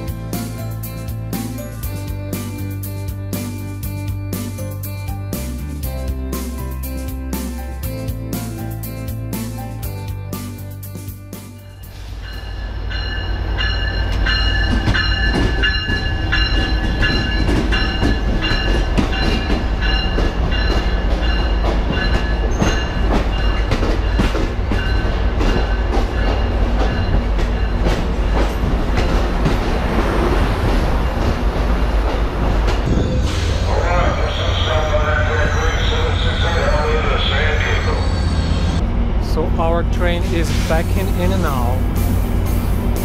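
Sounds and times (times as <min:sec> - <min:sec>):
train rumble: 0:00.0 - 0:43.0
high ringing tones: 0:11.6 - 0:27.8
wheels clacking over rail joints: 0:13.6 - 0:33.0.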